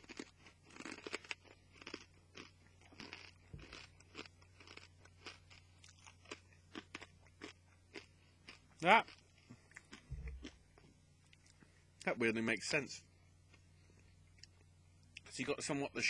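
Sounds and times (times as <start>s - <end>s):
person chewing crunchy food: 0.0s - 11.7s.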